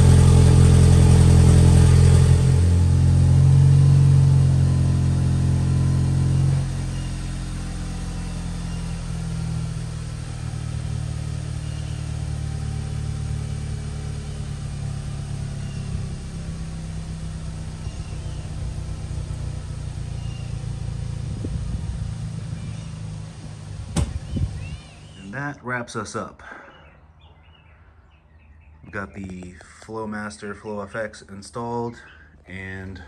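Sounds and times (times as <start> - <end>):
low car exhaust note: 0.0 - 25.2.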